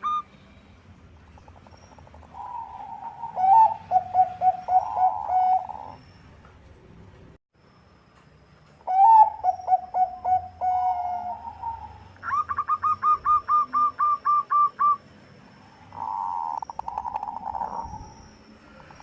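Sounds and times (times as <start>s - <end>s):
dove cooing: 1.3s - 6.0s, 8.9s - 15.0s.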